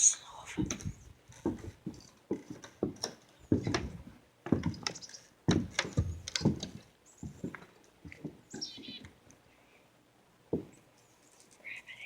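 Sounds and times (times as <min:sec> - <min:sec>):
footsteps on wooden deck: 0:00.3 - 0:09.4, 0:10.4 - 0:11.0.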